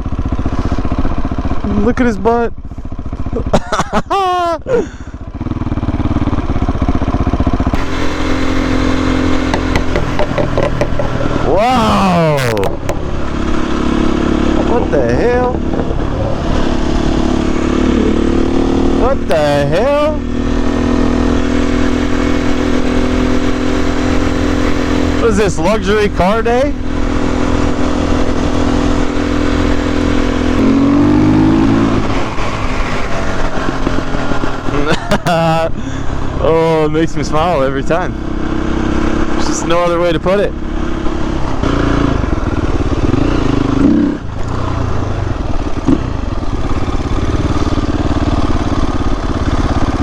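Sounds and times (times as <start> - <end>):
motorcycle engine running: 0.0 - 50.0
low wind rumble: 4.4 - 39.5.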